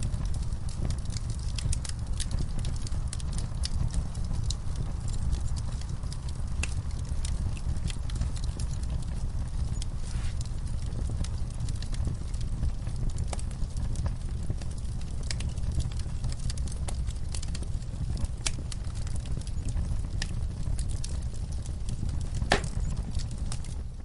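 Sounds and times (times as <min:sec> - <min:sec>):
fire crackling and snapping: 0:00.0 - 0:24.0
fire rumbling: 0:00.0 - 0:24.0
fire pop: 0:09.8 - 0:10.6, 0:21.9 - 0:23.7.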